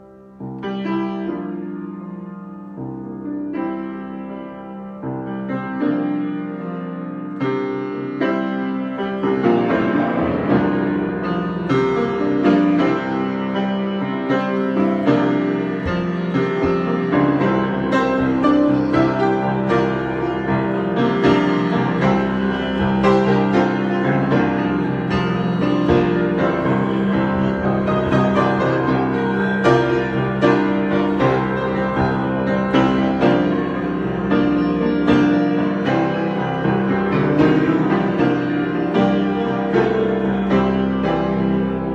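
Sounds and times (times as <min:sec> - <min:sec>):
solo piano improvisation: 0:00.0 - 0:41.9.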